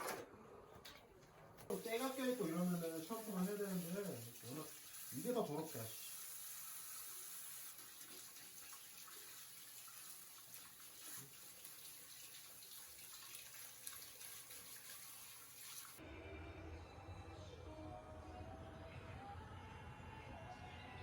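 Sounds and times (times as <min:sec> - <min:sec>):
running water hiss: 0:01.7 - 0:16.0.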